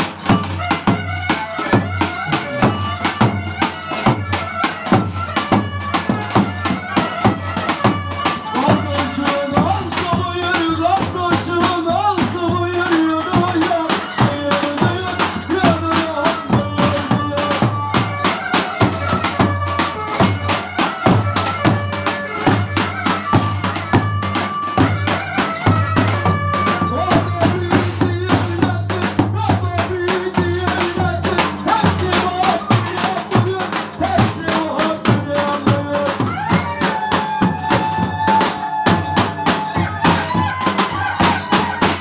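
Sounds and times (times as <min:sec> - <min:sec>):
drum beating fast rhythm: 0:00.0 - 0:42.0
folk melody with sliding notes: 0:00.0 - 0:42.0.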